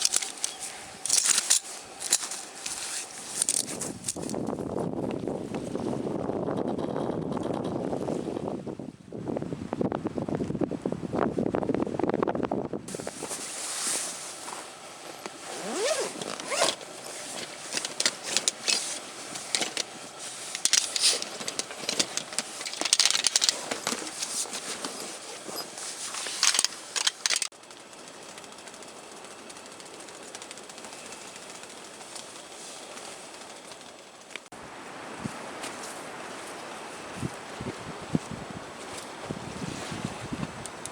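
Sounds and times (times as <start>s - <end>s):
crackling and scraping: 0.0s - 4.6s, 12.9s - 27.6s
steady outdoor hiss: 0.0s - 40.9s.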